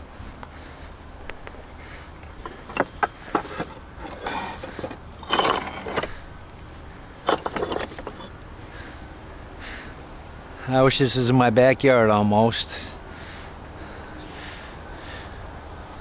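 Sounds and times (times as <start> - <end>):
stone grinding scrapes: 2.4 - 6.2, 7.2 - 8.3
stone pieces clinking: 2.4 - 6.2, 7.2 - 8.3.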